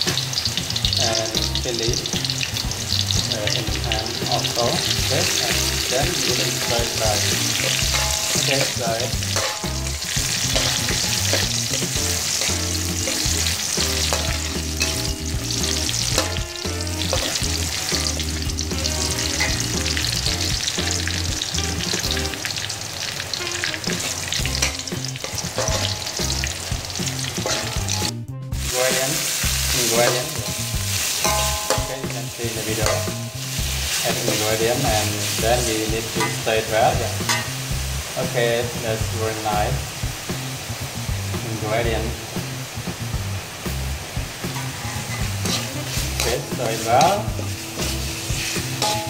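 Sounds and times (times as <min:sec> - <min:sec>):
garlic sizzling in hot oil: 0:00.0 - 0:49.0
metal spatula scraping a pan: 0:04.2 - 0:21.2, 0:21.9 - 0:28.1, 0:28.7 - 0:38.4, 0:44.5 - 0:49.0.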